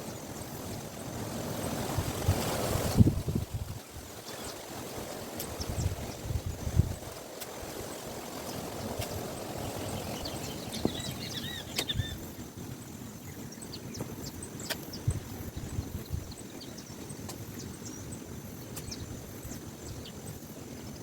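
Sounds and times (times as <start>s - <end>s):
steady outdoor hiss: 0.0s - 21.0s
bird chirping: 8.4s - 12.4s.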